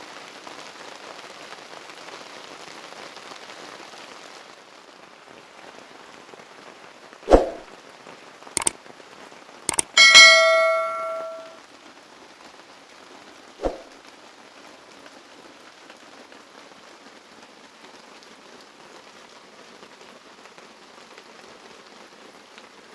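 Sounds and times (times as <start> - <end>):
steady rain falling: 0.0 - 9.7, 11.5 - 22.9
knocks and clicks: 9.7 - 11.5
loud metallic clang: 9.7 - 11.6.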